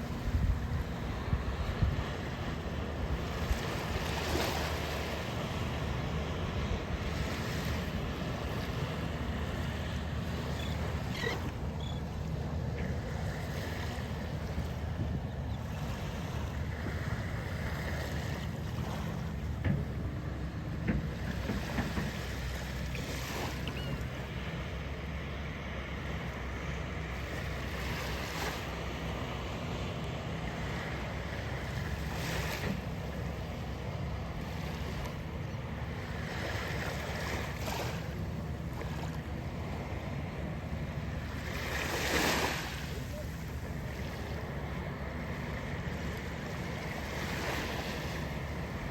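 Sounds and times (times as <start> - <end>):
wind rumbling on microphone: 0.0 - 4.2
wind rumble on microphone: 0.0 - 10.7
waves washing ashore: 0.0 - 48.9.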